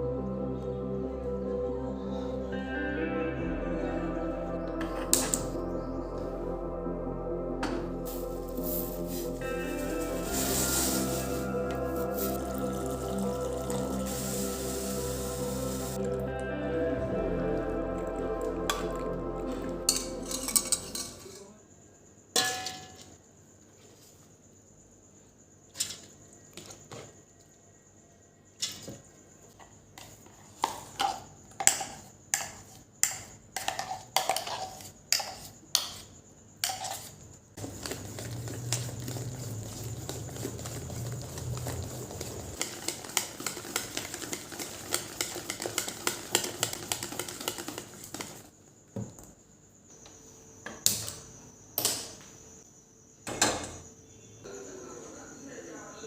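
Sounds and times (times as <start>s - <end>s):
low hum: 0.0s - 21.4s
utensils and dishes clinking: 19.9s - 21.4s.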